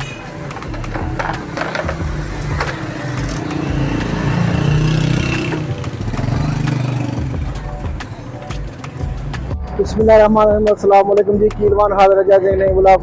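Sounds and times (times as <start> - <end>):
vehicle engine running: 0.0 - 9.6.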